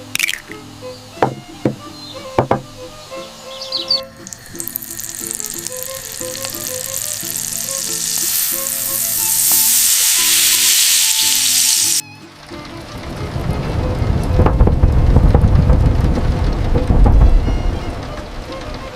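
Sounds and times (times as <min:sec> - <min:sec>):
soft background music: 0:00.0 - 0:14.0
food sizzling on a stove: 0:04.2 - 0:12.0.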